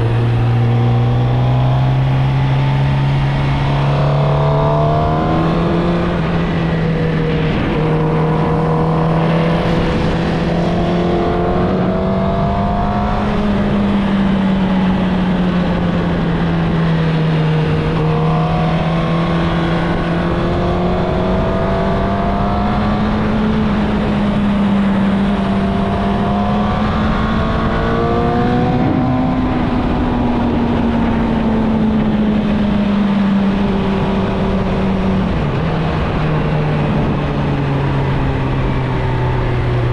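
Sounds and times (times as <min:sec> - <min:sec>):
motorcycle engine at riding revs: 0:00.0 - 0:39.9.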